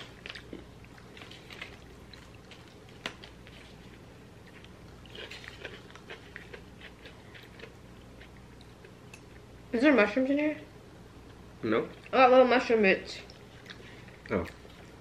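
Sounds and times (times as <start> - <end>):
crackly sounds: 0.0 - 9.5
wet chewing: 0.0 - 9.5, 13.2 - 15.0.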